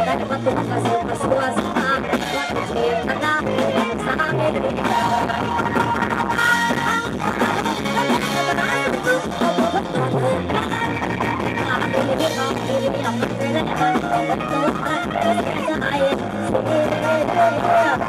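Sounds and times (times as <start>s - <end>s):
loud music through speakers: 0.0s - 18.0s
steady bass line: 0.0s - 18.0s.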